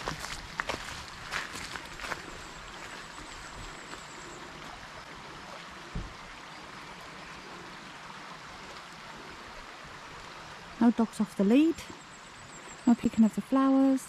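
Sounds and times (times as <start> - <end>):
stream running water: 0.0 - 14.0
short low thump: 5.9 - 6.2.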